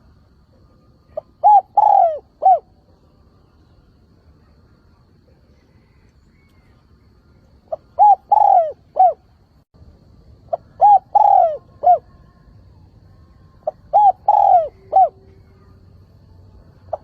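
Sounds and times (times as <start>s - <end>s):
dove cooing: 1.0s - 2.7s, 7.7s - 9.3s, 10.5s - 12.3s, 13.6s - 15.9s.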